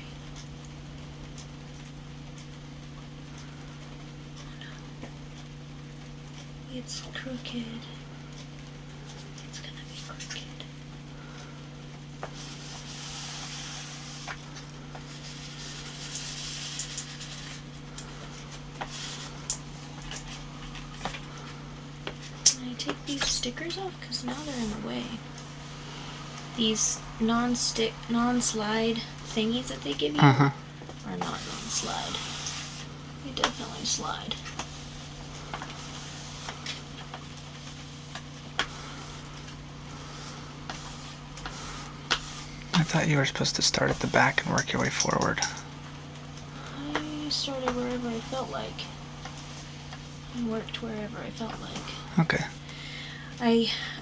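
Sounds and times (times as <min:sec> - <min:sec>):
low electrical hum: 0:00.0 - 0:54.0
squeegee card rubbing on film: 0:12.2 - 0:17.7, 0:18.8 - 0:19.4, 0:31.2 - 0:39.4.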